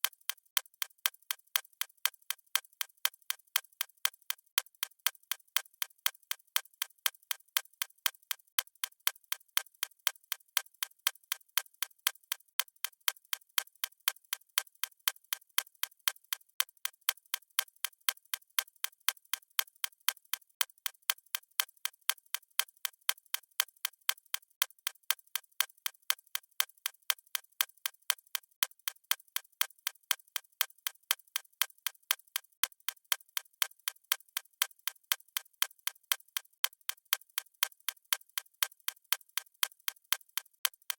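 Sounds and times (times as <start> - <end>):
clock ticking: 32.6 - 40.9.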